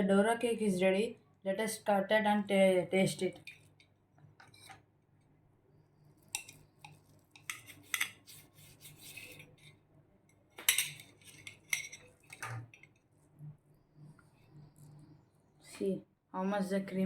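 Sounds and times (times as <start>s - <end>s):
cutlery scraping a plate: 3.4s - 3.8s, 4.4s - 4.8s, 6.3s - 9.8s, 10.6s - 13.0s.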